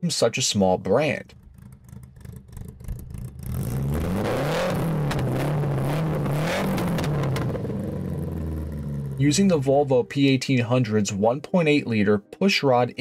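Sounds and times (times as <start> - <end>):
car engine revving: 1.2 - 9.8.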